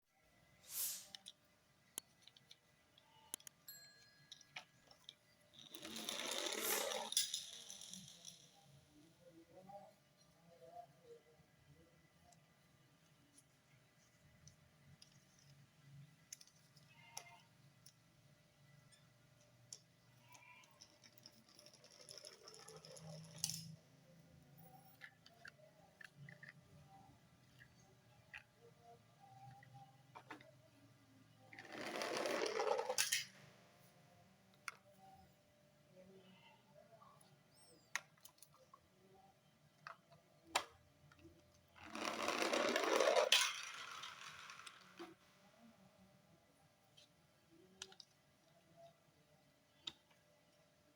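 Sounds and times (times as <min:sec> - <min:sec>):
toy cars clicking and tapping: 0:04.3 - 0:08.8, 0:19.6 - 0:23.8, 0:24.8 - 0:26.8, 0:31.5 - 0:33.4, 0:39.8 - 0:45.2.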